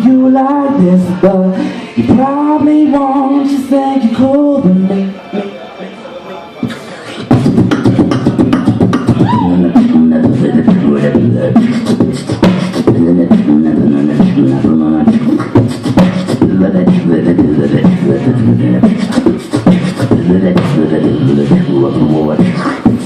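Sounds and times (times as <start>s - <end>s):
held vocal notes: 0.0s - 23.0s
beatboxing mouth percussion clicks: 6.6s - 23.0s.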